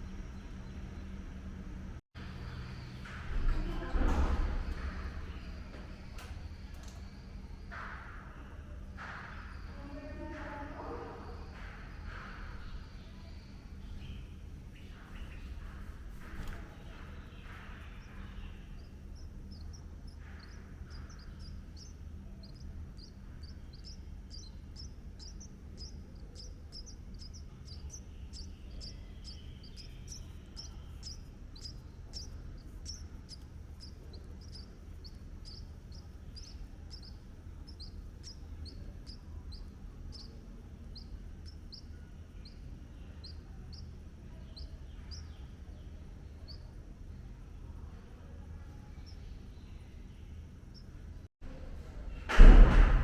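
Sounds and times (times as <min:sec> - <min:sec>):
steady low hum: 0:00.0 - 0:53.0
bird chirping: 0:02.2 - 0:47.3, 0:48.6 - 0:51.0.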